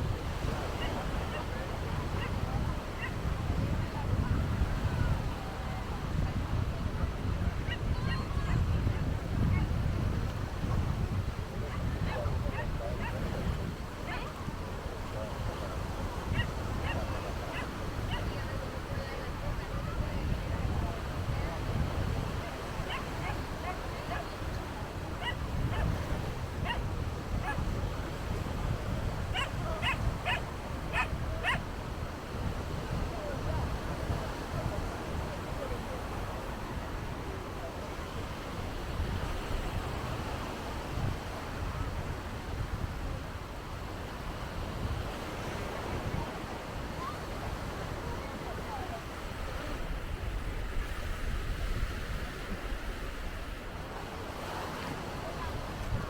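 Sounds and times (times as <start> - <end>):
sea waves washing onto beach: 0.0 - 56.0
wind rumble on microphone: 0.0 - 56.0
dog yapping: 22.9 - 24.3, 25.2 - 25.9, 26.6 - 26.8, 29.3 - 31.6.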